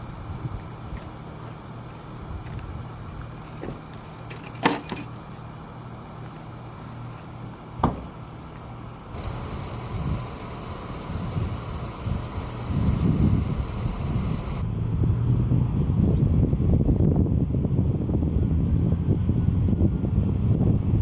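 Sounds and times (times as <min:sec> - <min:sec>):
vehicle engine idling: 0:08.2 - 0:14.6.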